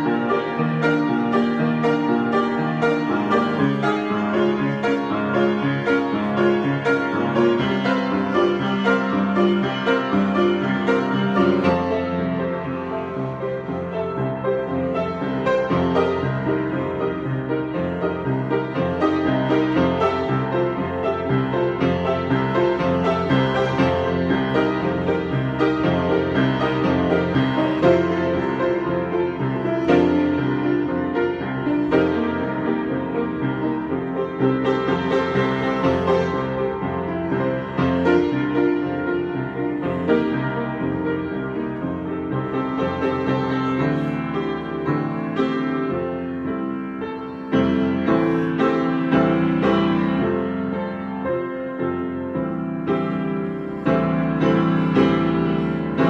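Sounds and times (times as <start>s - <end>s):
solo piano improvising: 0.0s - 56.0s.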